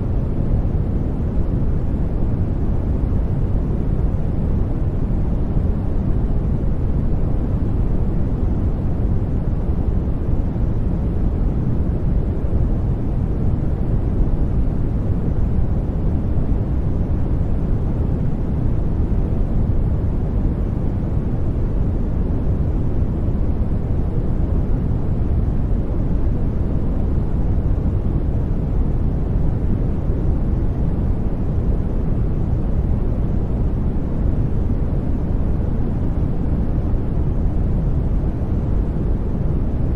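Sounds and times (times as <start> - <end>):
steady low hiss noise: 0.0 - 39.9.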